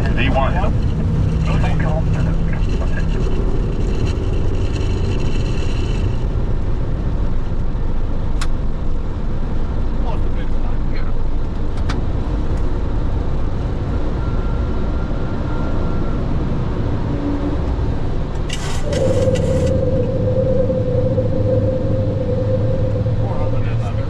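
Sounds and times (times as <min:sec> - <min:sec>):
radio crackle: 0:00.0 - 0:06.2
aircraft cockpit low rumble: 0:00.0 - 0:24.0
steady hum-like tone: 0:18.6 - 0:24.0.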